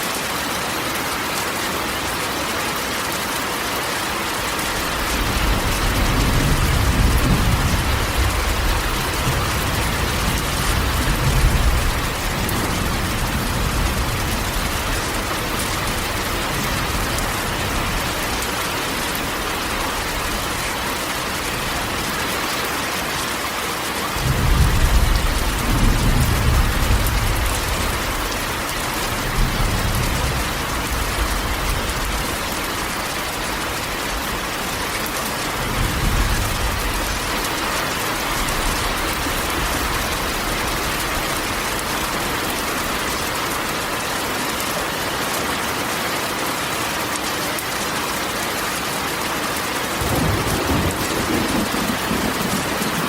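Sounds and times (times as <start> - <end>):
rain on a tin roof: 0.0 - 53.0
thunder rumbling: 4.8 - 18.6, 24.2 - 32.9, 50.0 - 53.0.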